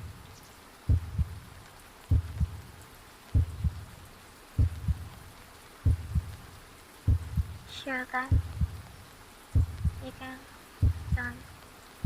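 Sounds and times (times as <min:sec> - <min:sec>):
heartbeat thumps: 0:00.0 - 0:00.3, 0:00.9 - 0:02.7, 0:03.3 - 0:04.0, 0:04.6 - 0:05.2, 0:05.8 - 0:06.5, 0:07.1 - 0:07.7, 0:08.3 - 0:08.9, 0:09.6 - 0:10.1, 0:10.8 - 0:11.4
faint rain hiss: 0:00.0 - 0:12.0.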